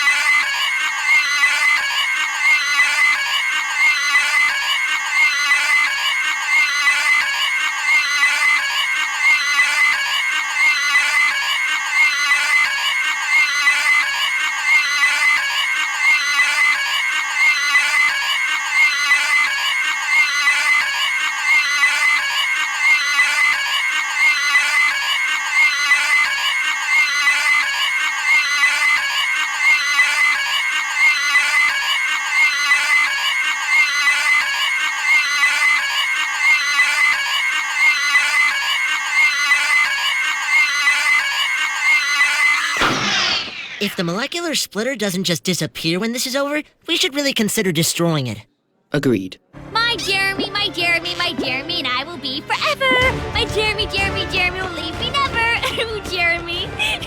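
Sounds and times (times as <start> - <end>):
cartoon pig squealing: 0.0 - 44.4.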